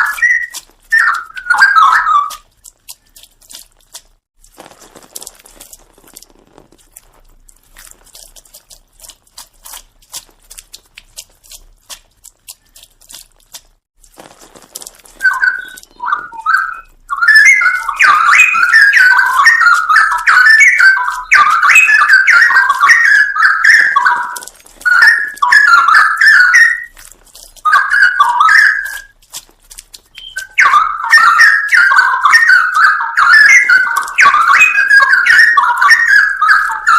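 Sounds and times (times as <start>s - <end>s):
bird singing warbled phrases: 0.0s - 3.2s, 15.0s - 29.4s, 30.0s - 36.9s.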